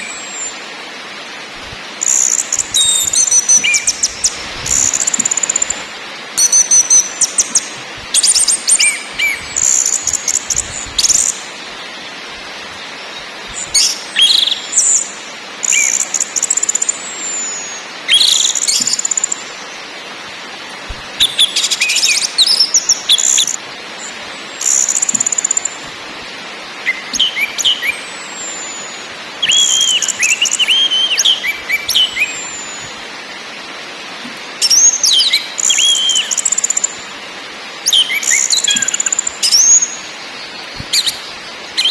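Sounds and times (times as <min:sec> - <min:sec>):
bird singing high phrases: 0:02.0 - 0:05.8, 0:06.4 - 0:11.5, 0:13.0 - 0:19.8, 0:21.2 - 0:25.8, 0:26.8 - 0:33.0, 0:34.6 - 0:37.0, 0:37.9 - 0:41.9.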